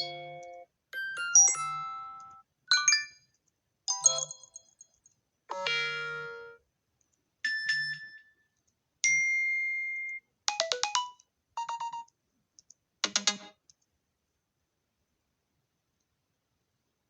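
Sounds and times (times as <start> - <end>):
phone chimes and beeps: 10.6 - 12.1.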